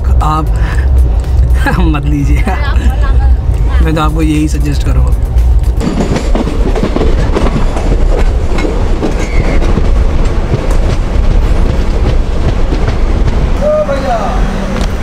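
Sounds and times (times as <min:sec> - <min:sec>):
train wheels clattering on rails: 0:04.1 - 0:15.0.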